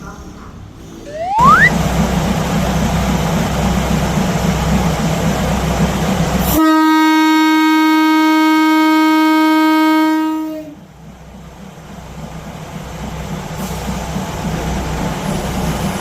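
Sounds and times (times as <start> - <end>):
train rumbling: 0.0 - 16.0
rising whistle: 1.0 - 1.8
train horn blast: 6.4 - 10.8.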